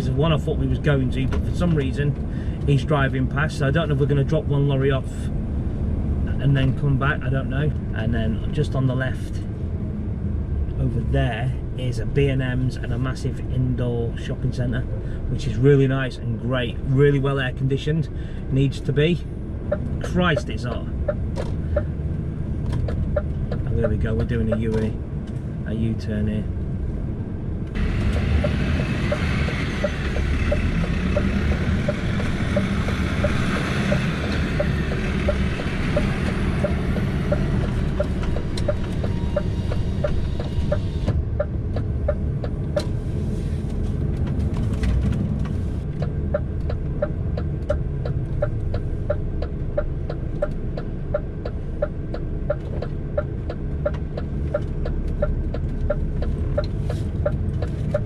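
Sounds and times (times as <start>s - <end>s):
diesel engine running: 0.0s - 12.6s, 18.0s - 58.0s
turn indicator ticking: 18.9s - 25.4s, 27.6s - 43.1s, 45.2s - 58.0s.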